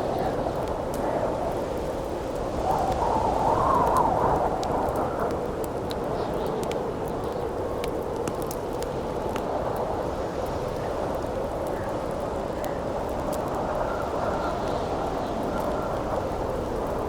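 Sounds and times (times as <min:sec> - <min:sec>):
campfire crackling and popping: 0:03.7 - 0:14.3.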